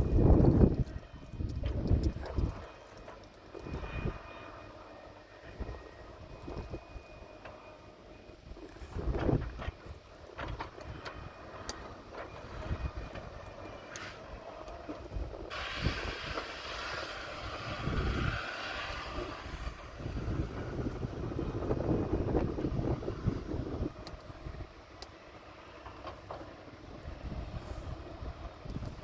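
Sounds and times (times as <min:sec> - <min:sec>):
diesel machinery rumbling: 0:07.9 - 0:29.0
hiss: 0:15.4 - 0:20.9.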